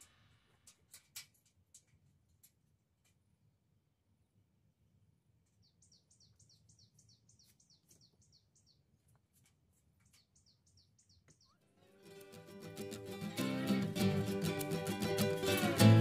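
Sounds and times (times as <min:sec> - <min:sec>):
faint bird song: 0:05.2 - 0:11.8.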